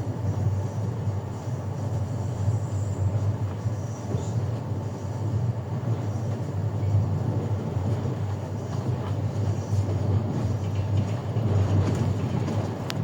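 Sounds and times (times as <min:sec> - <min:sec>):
train interior rumble: 0:00.0 - 0:13.0
wheels knocking on rails: 0:07.8 - 0:13.0.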